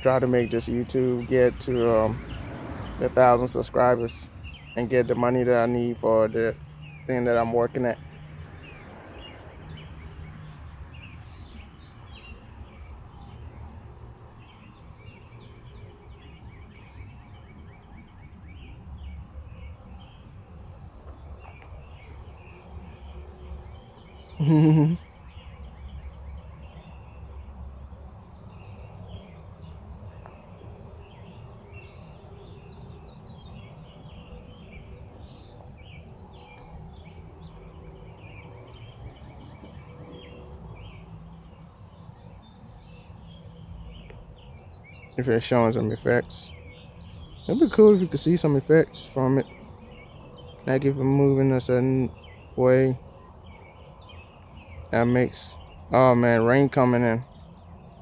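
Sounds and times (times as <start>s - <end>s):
steady outdoor noise: 0.0s - 58.0s
faint bird chirps: 14.4s - 58.0s
loud low vocal sound: 24.4s - 25.0s.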